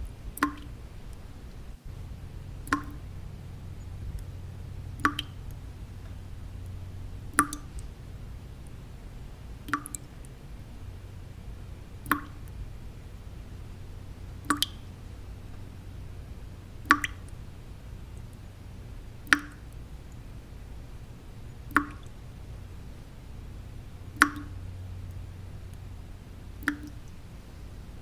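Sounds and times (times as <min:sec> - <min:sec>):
steady low noise: 0:00.0 - 0:28.0
water drops plopping into water: 0:00.3 - 0:08.0, 0:08.6 - 0:12.7, 0:13.4 - 0:14.9, 0:16.8 - 0:17.4, 0:19.2 - 0:20.2, 0:21.6 - 0:22.2, 0:24.1 - 0:25.9, 0:26.6 - 0:27.2.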